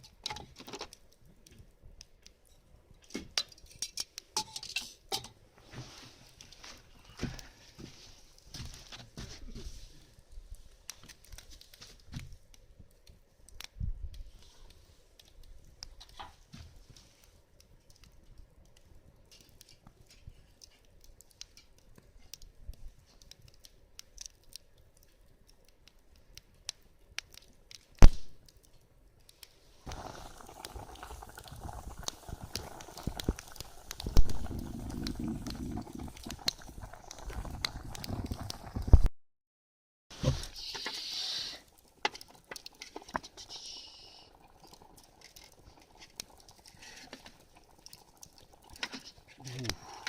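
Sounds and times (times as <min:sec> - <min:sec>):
campfire crackling: 0:00.0 - 0:39.1, 0:40.1 - 0:50.0
rustling rumbling noise: 0:29.8 - 0:39.1.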